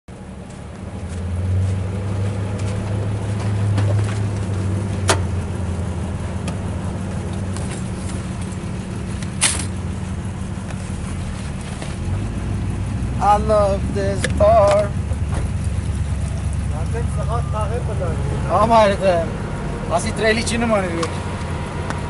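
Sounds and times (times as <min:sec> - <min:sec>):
vehicle engine idling: 0:00.1 - 0:22.0
sharp knocks of gear moving: 0:07.3 - 0:09.8.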